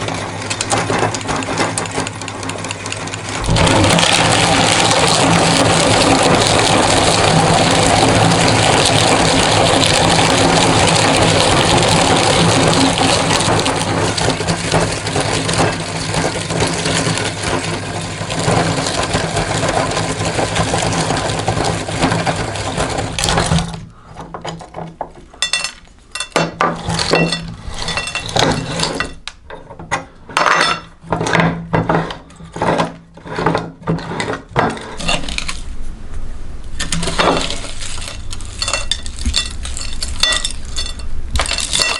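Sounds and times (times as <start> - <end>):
meat grinder motor hum: 0.0 - 24.1
plastic cracking and clinking: 0.0 - 31.5, 34.6 - 35.6, 36.8 - 41.9.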